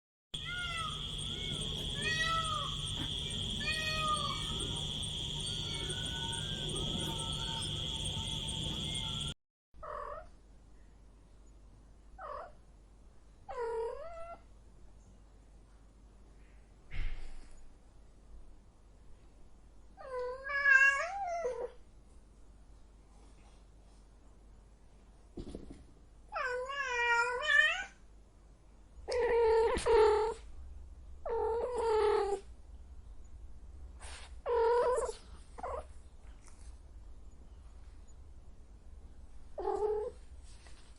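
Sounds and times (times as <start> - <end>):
cat meowing: 0.4 - 9.2.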